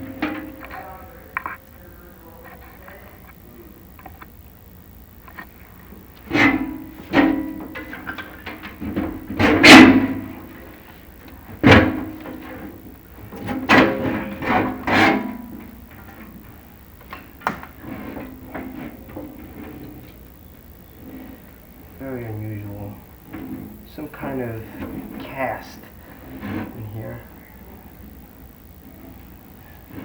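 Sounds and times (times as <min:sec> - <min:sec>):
rods scraping and knocking in flue: 0:02.4 - 0:30.0.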